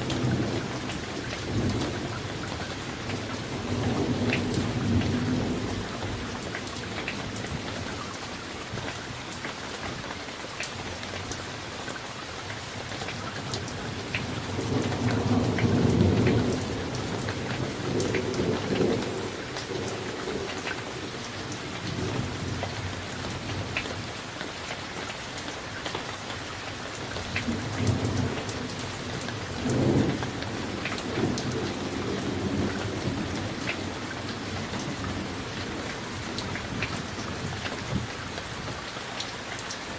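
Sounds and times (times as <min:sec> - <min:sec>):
steady rain: 0:00.0 - 0:39.9
thunder rolling: 0:27.5 - 0:38.1.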